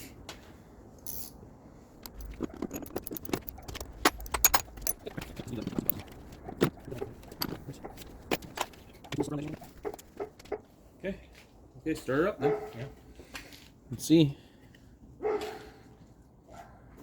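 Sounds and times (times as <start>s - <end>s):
small metal objects clinking: 1.0s - 1.3s, 2.0s - 10.6s.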